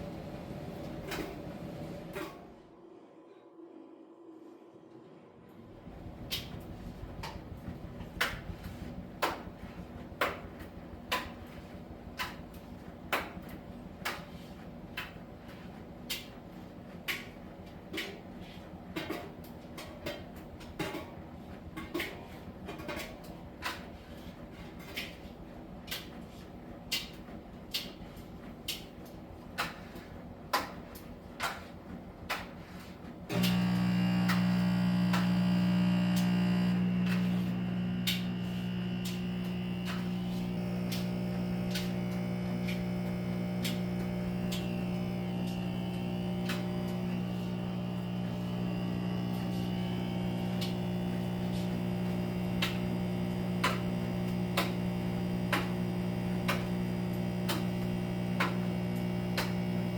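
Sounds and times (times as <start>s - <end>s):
tumble dryer running: 0.0s - 2.4s, 5.6s - 13.3s, 33.2s - 59.9s
loud steady low hum: 33.3s - 59.9s.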